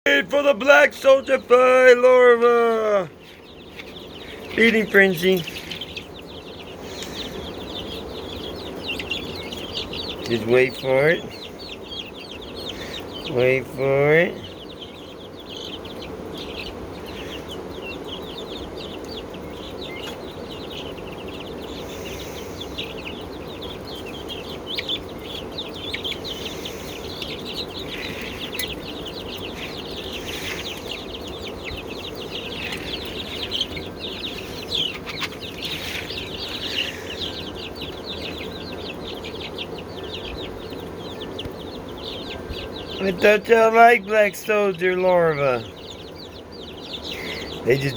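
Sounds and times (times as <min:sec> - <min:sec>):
flock of birds calling: 0:00.0 - 0:47.9
steady low hum: 0:03.0 - 0:47.9.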